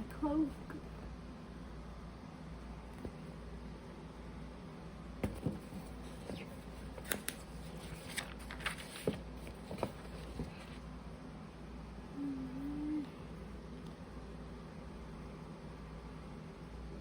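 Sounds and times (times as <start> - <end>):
magazine pages turning: 5.3 - 10.8.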